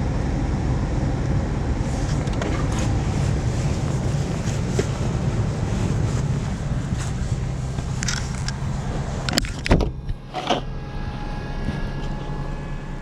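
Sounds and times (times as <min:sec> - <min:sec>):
vehicle engine idling: 0:00.0 - 0:13.0
light ticks and scrapes: 0:01.9 - 0:09.7.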